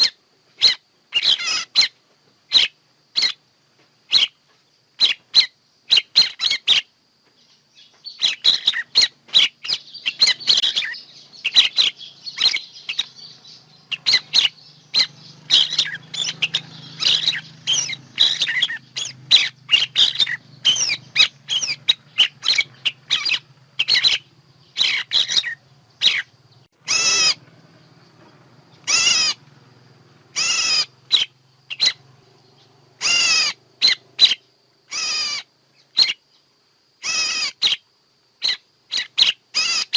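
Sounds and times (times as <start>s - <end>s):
harsh bird calls: 0.0s - 39.9s.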